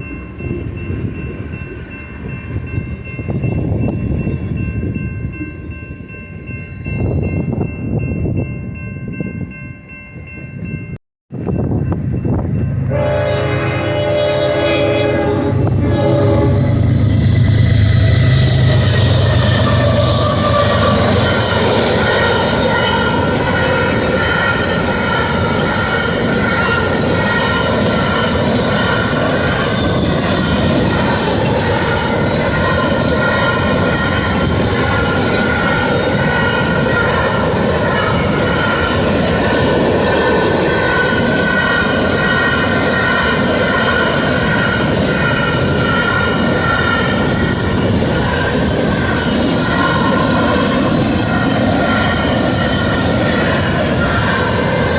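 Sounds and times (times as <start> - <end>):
freight train rumbling on rails: 0.0 - 54.9
high wavering wheel squeal: 14.6 - 39.1.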